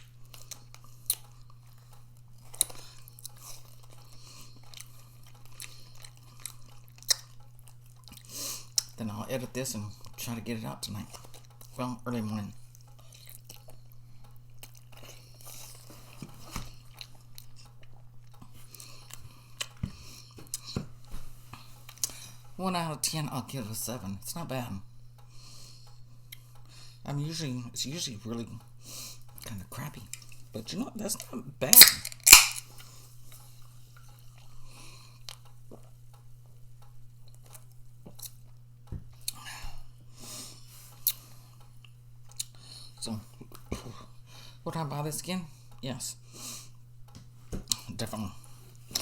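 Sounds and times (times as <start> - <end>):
person chewing food: 0.0 - 9.0, 11.0 - 11.8, 12.6 - 22.4, 25.4 - 26.8, 30.1 - 30.5, 31.8 - 36.0, 37.1 - 44.2, 47.6 - 49.0
steady low hum: 0.0 - 49.0.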